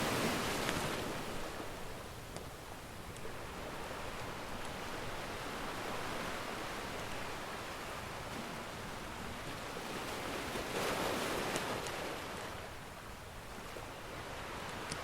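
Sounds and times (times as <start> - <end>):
ocean surf washing in: 0.0 - 2.0.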